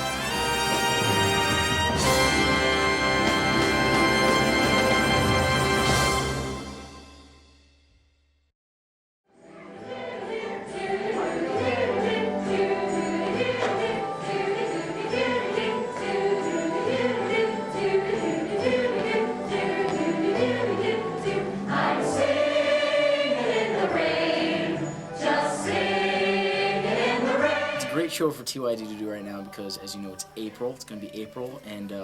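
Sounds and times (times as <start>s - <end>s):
instrumental accompaniment: 0.0s - 7.6s
group of voices singing: 9.5s - 32.0s.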